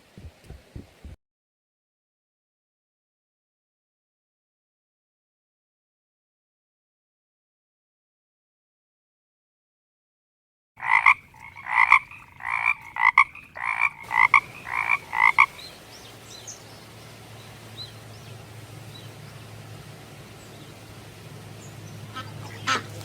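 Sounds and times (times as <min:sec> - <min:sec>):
frog croaking: 0:10.8 - 0:15.7.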